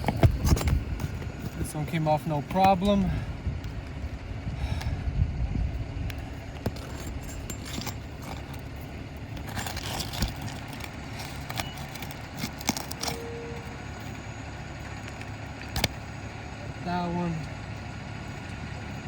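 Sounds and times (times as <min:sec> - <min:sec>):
metal tool scraping roof shingles: 0:00.0 - 0:03.0, 0:06.5 - 0:13.2
low background rumble: 0:00.0 - 0:19.0.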